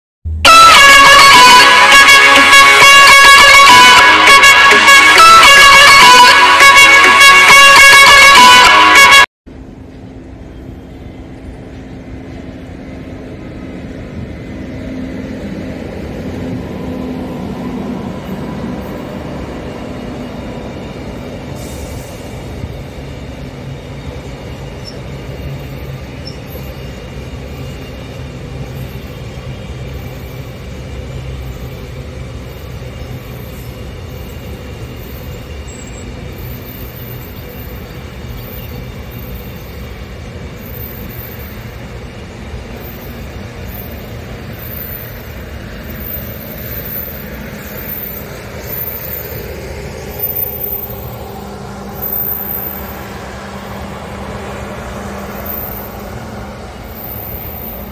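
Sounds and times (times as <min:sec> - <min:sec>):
freight train wheels rumbling: 0:09.5 - 0:57.9.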